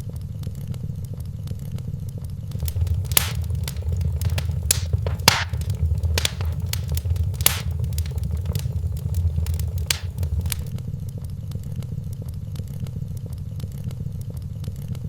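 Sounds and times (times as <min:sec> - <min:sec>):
wood fire crackling: 0:02.5 - 0:10.7.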